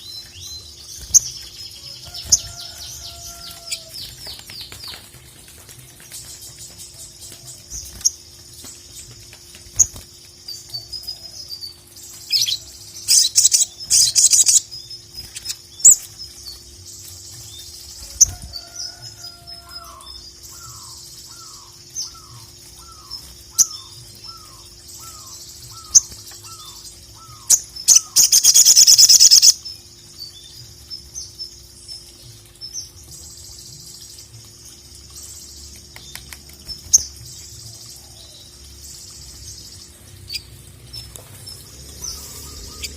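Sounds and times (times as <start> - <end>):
bird chirping and trilling: 9.8 - 16.7, 17.4 - 30.5, 34.8 - 42.9.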